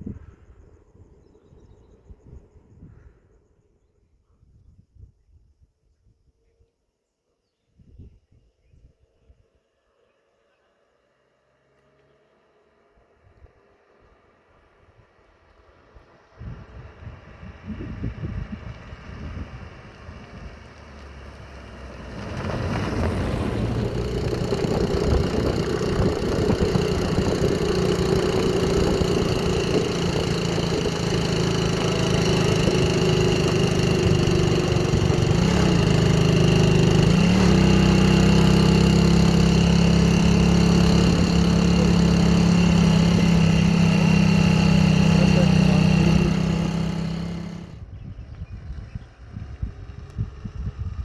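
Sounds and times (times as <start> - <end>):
engine running: 11.6 - 51.0.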